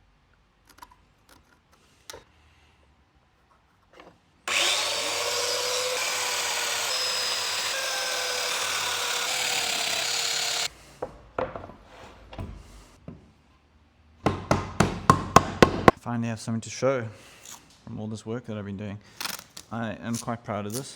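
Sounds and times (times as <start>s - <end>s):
power joiner cutting wood: 4.5s - 10.7s.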